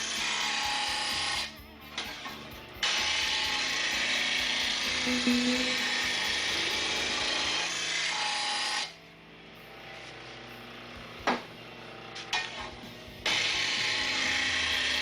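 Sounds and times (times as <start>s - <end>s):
grinder motor hum: 0.0s - 9.0s, 9.7s - 15.0s
grinder wheel grinding metal blade: 0.0s - 9.0s, 11.8s - 15.0s.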